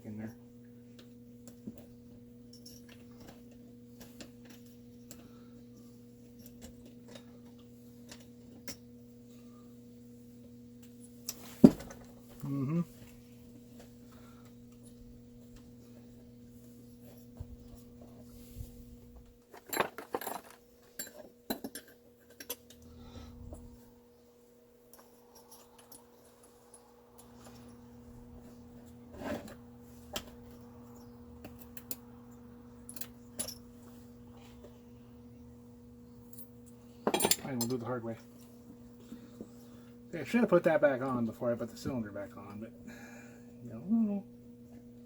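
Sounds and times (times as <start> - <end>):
steady low hum: 0.0 - 19.5, 20.8 - 45.0
metal parts clicking and clinking: 19.5 - 22.9, 32.8 - 33.6, 37.0 - 37.8.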